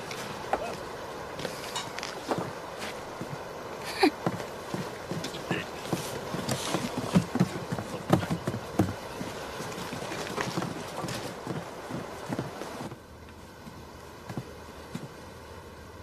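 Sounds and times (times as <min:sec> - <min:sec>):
steady background hiss: 0:00.0 - 0:16.0
footsteps on hard surface: 0:04.2 - 0:13.0.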